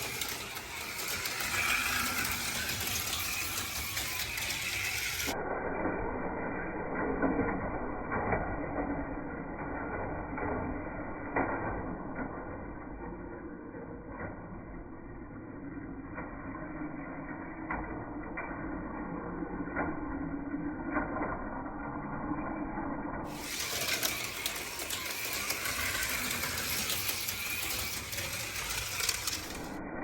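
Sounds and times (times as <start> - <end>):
clicks and knocks on plastic track: 0.0 - 5.4, 23.3 - 29.8
slot car motor whir: 0.0 - 5.4, 23.3 - 29.8.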